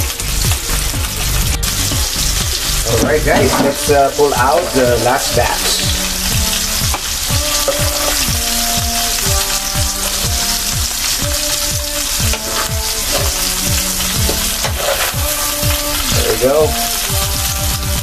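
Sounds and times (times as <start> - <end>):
liver sizzling in a pan: 0.0 - 18.0
low beat: 0.0 - 18.0
tongs lifting from pan: 12.3 - 16.1.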